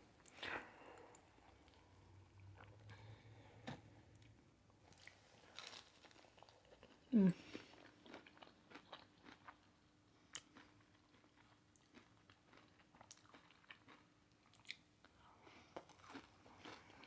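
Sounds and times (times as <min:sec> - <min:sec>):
chewing crunchy food: 0:04.9 - 0:17.0.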